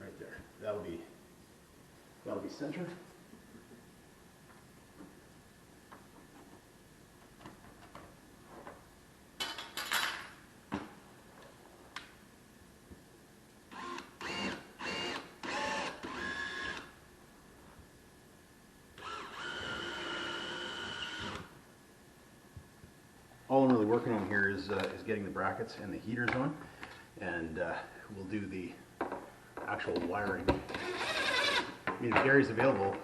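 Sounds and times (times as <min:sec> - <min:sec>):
power drill running: 0:13.7 - 0:16.9, 0:19.0 - 0:21.5, 0:30.7 - 0:31.8.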